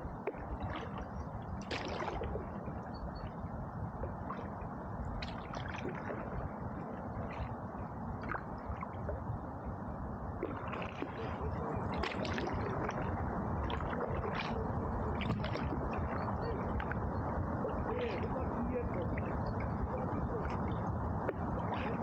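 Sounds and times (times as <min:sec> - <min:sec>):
low rush of water: 0:00.0 - 0:22.0
paddle splashing in water: 0:00.2 - 0:02.5, 0:05.2 - 0:06.4, 0:10.4 - 0:22.0.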